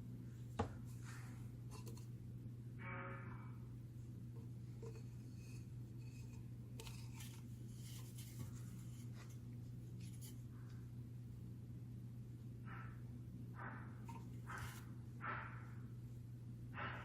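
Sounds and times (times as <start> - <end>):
steady low hum: 0.0 - 17.0
rubbing of parts being handled: 0.7 - 2.2, 4.3 - 10.8, 14.0 - 15.4.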